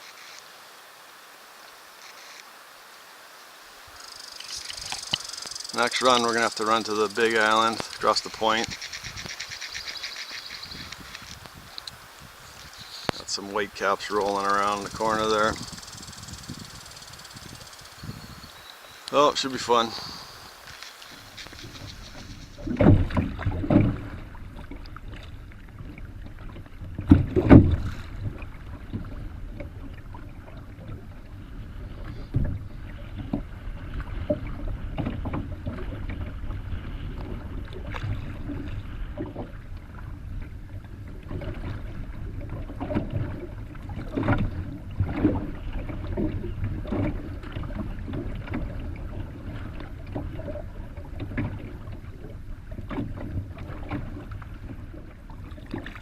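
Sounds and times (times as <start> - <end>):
canoe paddle strokes: 0.0 - 56.0
waves splashing against hull: 3.6 - 56.0
wind rumble on microphone: 4.5 - 56.0
loud knocks or splashes: 22.6 - 24.2, 27.0 - 29.0.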